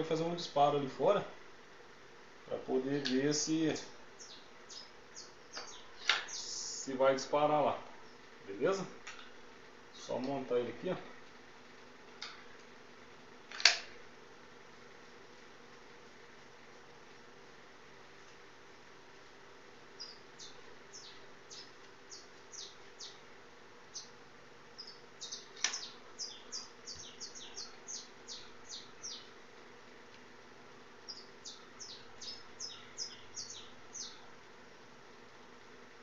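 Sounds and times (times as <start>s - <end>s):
faint steady hum: 0.0s - 36.0s
small bird chirping: 3.7s - 6.9s, 19.9s - 23.3s, 23.9s - 29.4s, 31.0s - 34.3s.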